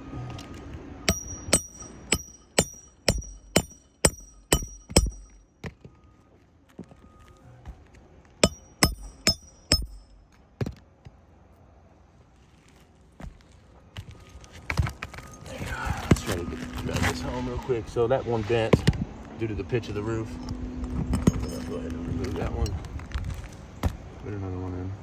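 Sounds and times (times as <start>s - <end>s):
hammer striking roofing nails: 1.1s - 5.4s, 8.4s - 10.8s.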